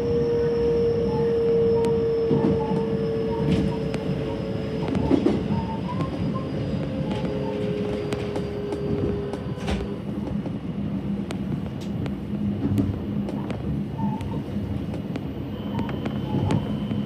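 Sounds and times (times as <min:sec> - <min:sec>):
held whine: 0:00.0 - 0:17.0
wheels rumbling on rail: 0:00.0 - 0:17.0
sharp track clicks: 0:11.2 - 0:17.0.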